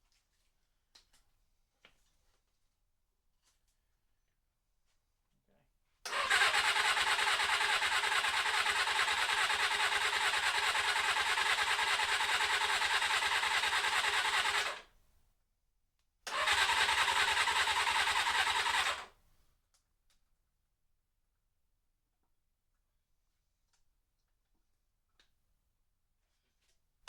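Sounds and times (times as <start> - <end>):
motorcycle engine cranking: 6.1 - 14.8, 16.3 - 19.1.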